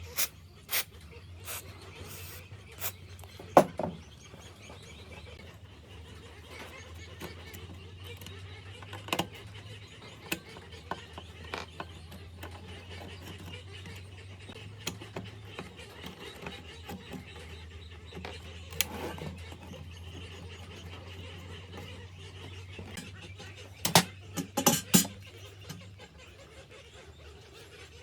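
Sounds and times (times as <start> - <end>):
metal tool parts clicking: 23.8 - 25.8.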